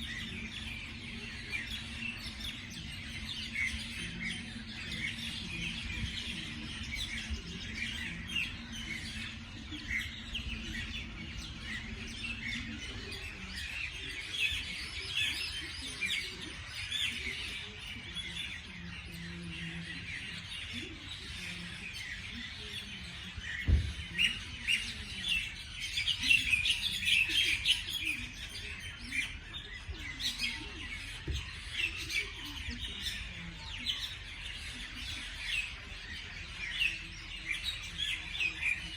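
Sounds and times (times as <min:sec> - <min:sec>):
small birds chirping: 0:00.0 - 0:38.9
dull thump: 0:23.6 - 0:24.2.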